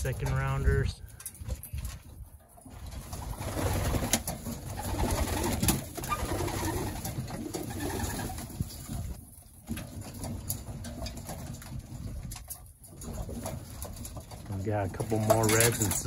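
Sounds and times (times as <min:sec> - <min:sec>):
pigeons cooing: 0:03.2 - 0:09.1.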